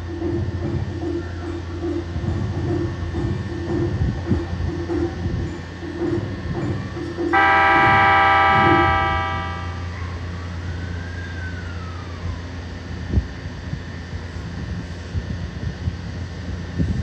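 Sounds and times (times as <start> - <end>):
electric train horn: 7.3 - 10.2.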